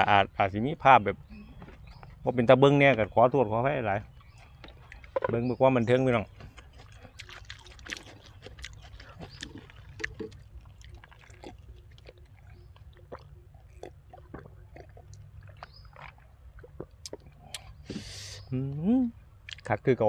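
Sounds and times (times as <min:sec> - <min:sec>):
person chewing food: 0:04.0 - 0:18.4, 0:19.4 - 0:19.7
mouth clicks and smacks: 0:04.0 - 0:19.7.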